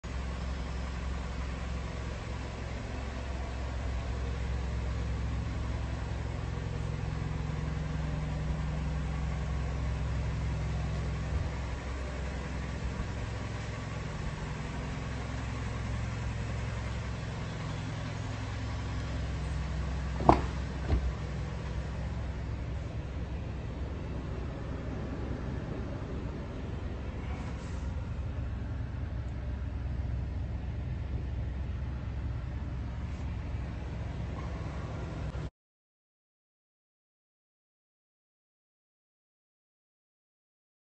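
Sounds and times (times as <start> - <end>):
car engine idling: 0.0 - 35.5
sharp clunks: 20.1 - 21.3.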